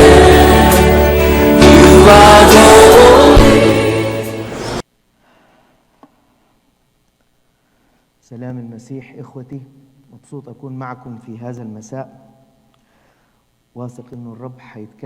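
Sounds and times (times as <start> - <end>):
choir singing over instruments: 0.0 - 4.8.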